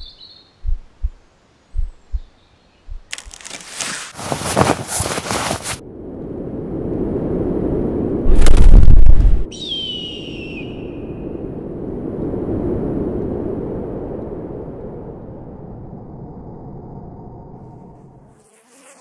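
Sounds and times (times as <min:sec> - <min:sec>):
hook-and-loop patch ripping: 0:03.1 - 0:05.8
long falling whistle: 0:09.5 - 0:11.4.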